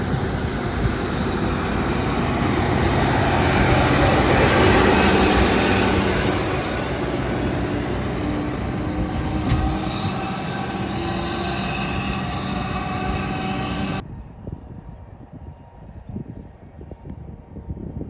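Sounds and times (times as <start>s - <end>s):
diesel locomotive engine drone: 0.0s - 14.3s.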